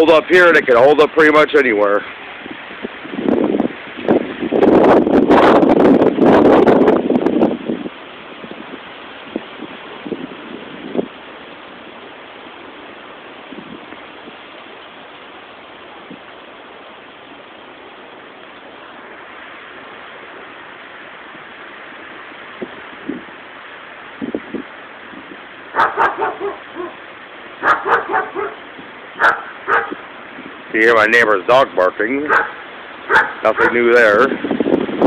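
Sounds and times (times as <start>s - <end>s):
wind gusts buffeting microphone: 0.0s - 35.0s
dog barking: 25.7s - 27.0s, 27.6s - 28.6s, 29.2s - 30.0s, 32.3s - 33.9s.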